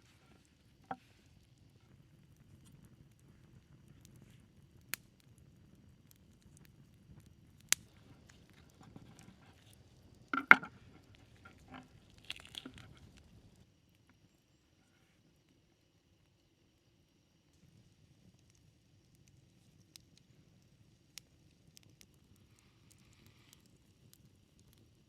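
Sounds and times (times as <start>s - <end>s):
sharp clicks and knocks: 10.4s - 10.7s.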